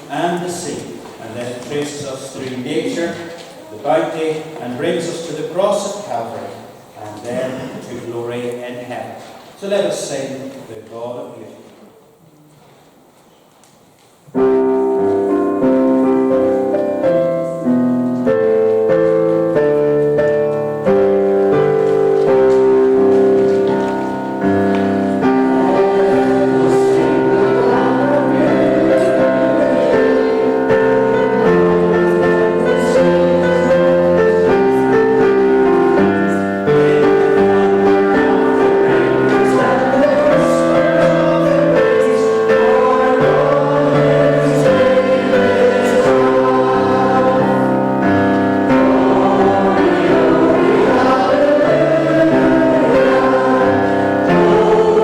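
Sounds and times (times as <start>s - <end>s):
congregation singing a hymn: 0.0s - 9.1s, 14.5s - 55.0s
instrumental accompaniment: 14.3s - 55.0s.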